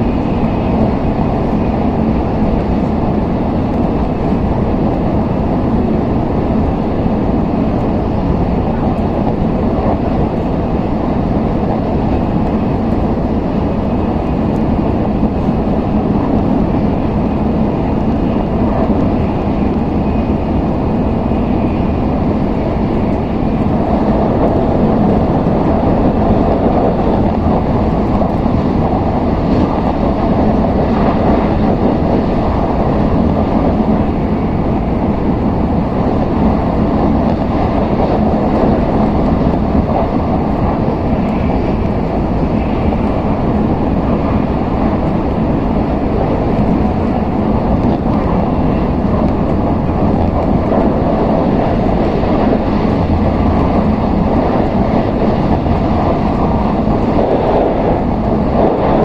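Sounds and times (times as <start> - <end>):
train cabin rumble: 0.0 - 59.0.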